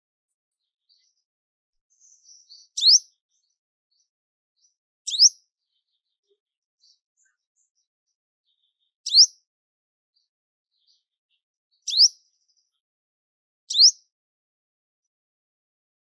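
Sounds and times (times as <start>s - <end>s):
bird whistling call: 2.8s - 3.0s, 5.1s - 5.4s, 9.1s - 9.3s, 11.9s - 12.2s, 13.7s - 14.0s.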